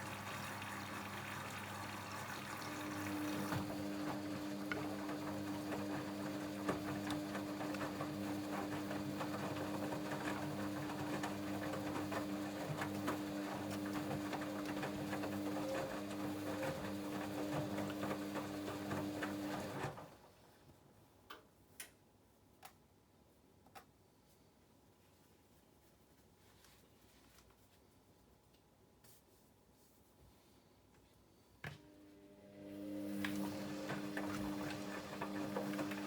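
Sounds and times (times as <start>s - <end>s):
washing machine drum tumbling: 33.4s - 36.0s.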